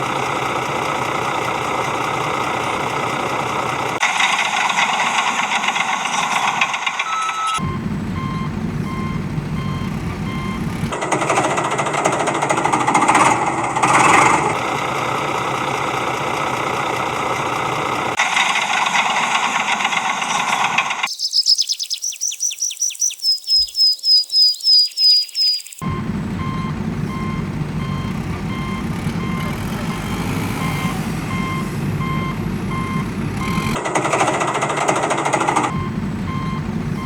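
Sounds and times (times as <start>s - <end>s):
heavy vehicle engine running: 0.0s - 21.1s, 25.8s - 37.0s
reversing beeper: 6.1s - 11.0s, 25.8s - 33.8s, 35.6s - 37.0s
high falling chirps: 20.3s - 33.8s.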